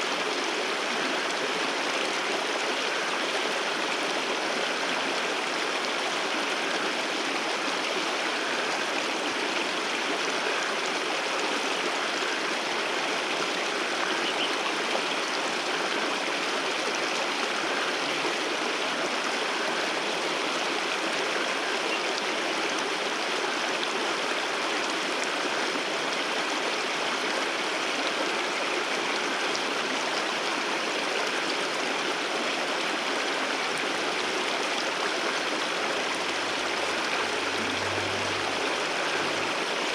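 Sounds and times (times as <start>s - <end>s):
waterfall rushing: 31.8s - 39.9s.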